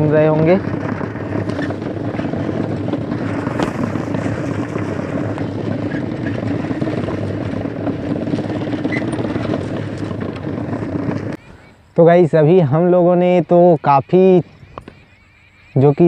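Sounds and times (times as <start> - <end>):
balloons fluttering on bicycle spokes: 0.0 - 11.4.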